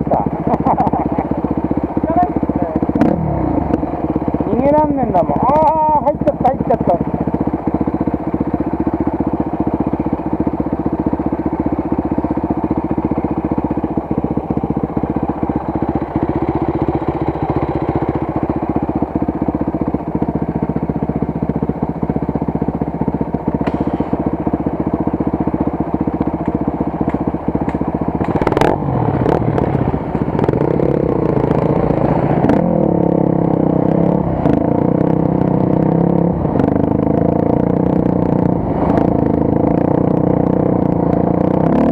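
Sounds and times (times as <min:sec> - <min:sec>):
motorcycle engine running: 0:00.0 - 0:41.9
sharp knock: 0:23.6 - 0:24.2.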